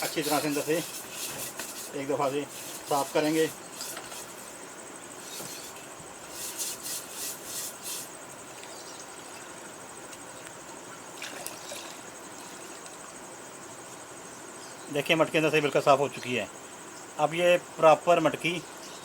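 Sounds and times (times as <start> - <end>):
scrubbing clay pot with water: 0.0 - 4.6, 5.2 - 9.6.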